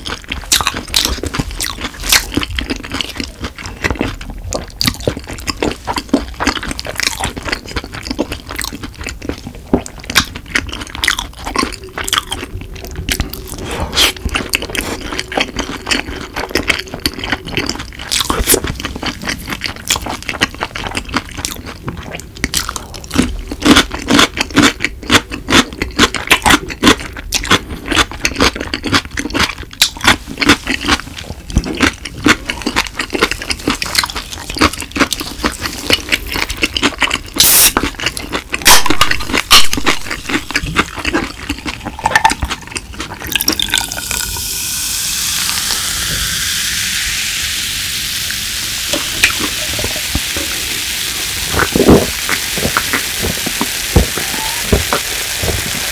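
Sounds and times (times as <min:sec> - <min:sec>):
crunchy chewing: 0:00.0 - 0:46.2, 0:49.0 - 0:55.9
soda pouring and fizzing over ice: 0:43.2 - 0:55.9.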